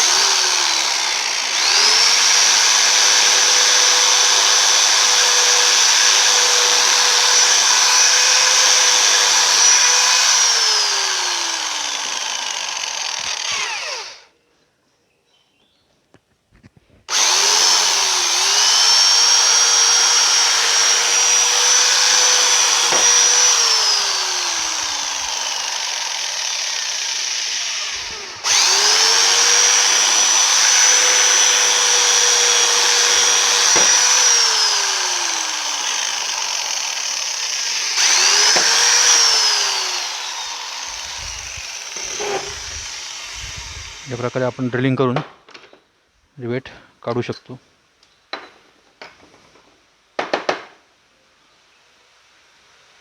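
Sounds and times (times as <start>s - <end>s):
electric drill whining: 0.0s - 14.3s, 17.1s - 45.0s.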